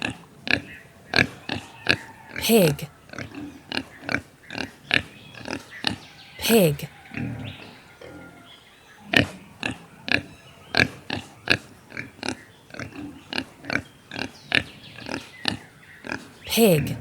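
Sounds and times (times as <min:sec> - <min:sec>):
pig grunting: 0:00.0 - 0:08.4, 0:09.0 - 0:17.0.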